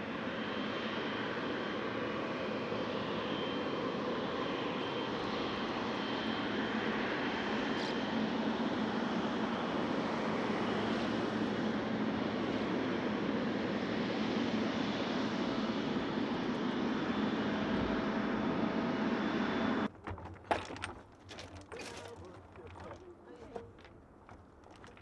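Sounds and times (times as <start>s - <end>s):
jet airliner engines roaring: 0.0s - 19.9s.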